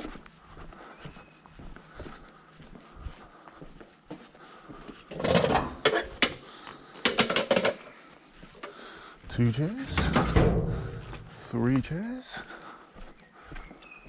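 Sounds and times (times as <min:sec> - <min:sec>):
chairs clattering and knocking: 0:05.1 - 0:06.4, 0:07.1 - 0:07.9, 0:09.9 - 0:11.3.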